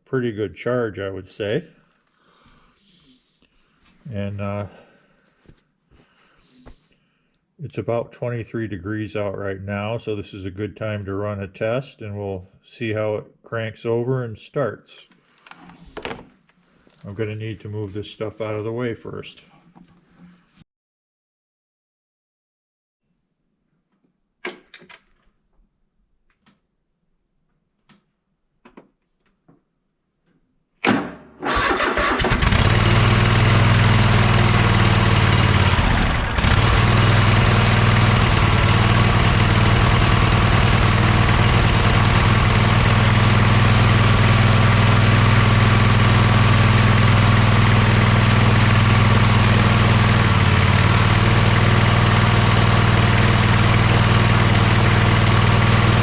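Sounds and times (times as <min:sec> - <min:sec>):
tractor engine cranking and running: 0:31.4 - 0:56.0.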